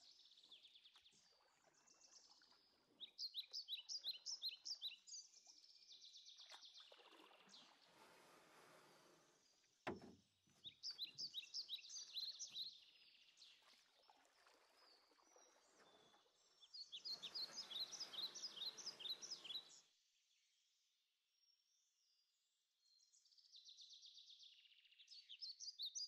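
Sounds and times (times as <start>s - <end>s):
songbird chirping: 0.0s - 19.9s
sharp knock: 9.9s - 10.2s.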